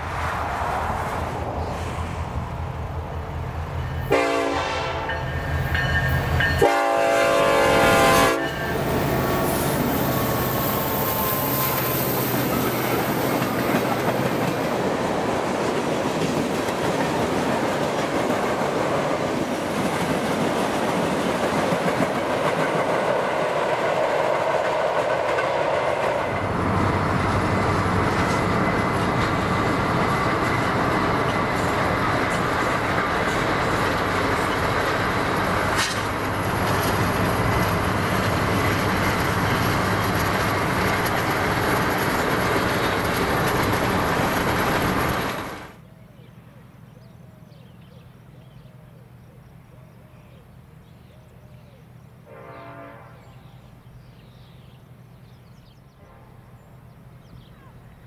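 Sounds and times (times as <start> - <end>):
train wheels on rails: 0.0 - 45.8
locomotive air horn blasts: 4.0 - 5.3, 6.5 - 8.9, 52.2 - 53.3, 56.0 - 56.4.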